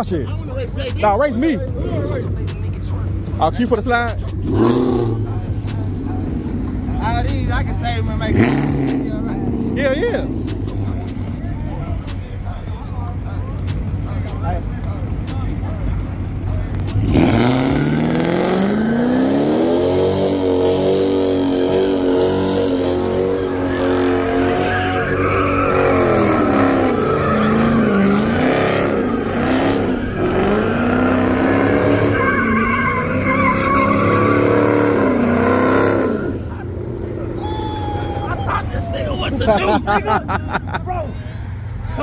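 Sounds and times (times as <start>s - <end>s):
car engine revving: 0.0s - 42.0s
tyres squealing: 15.0s - 41.1s.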